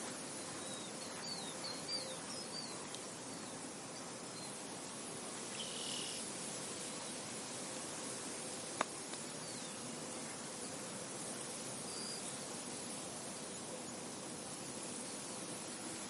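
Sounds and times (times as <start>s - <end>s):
wind rustling through a field: 0.0s - 16.0s.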